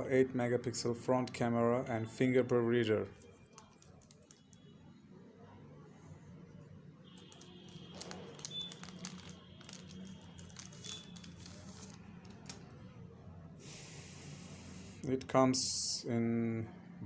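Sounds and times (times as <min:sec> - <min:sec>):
packaging crinkling and clicking: 0:03.2 - 0:04.6, 0:07.2 - 0:12.7.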